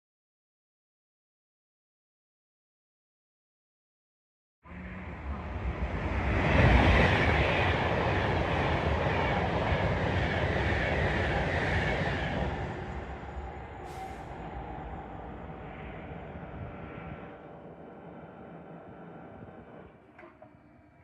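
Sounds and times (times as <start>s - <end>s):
train passing on rails: 4.7s - 21.0s.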